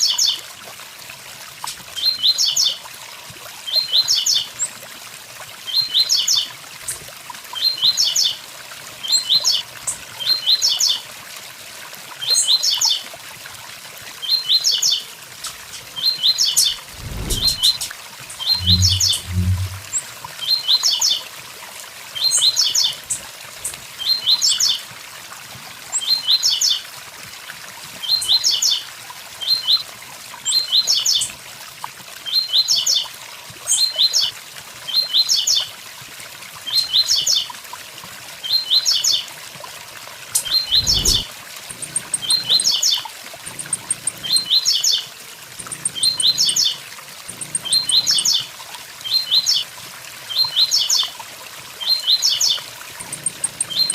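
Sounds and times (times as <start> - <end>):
waterfall hiss: 15.0 - 20.6, 39.9 - 48.5
bird singing high rising notes: 16.6 - 20.0, 40.4 - 41.3.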